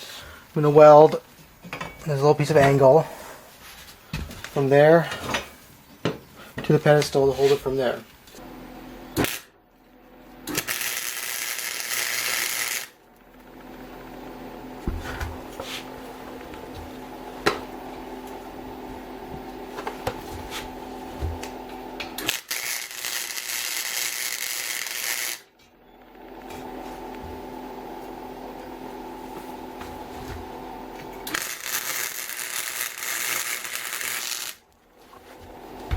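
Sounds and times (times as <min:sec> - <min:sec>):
welding crackling hiss: 0:09.2 - 0:09.5, 0:10.5 - 0:13.0, 0:22.2 - 0:25.5, 0:31.2 - 0:34.6.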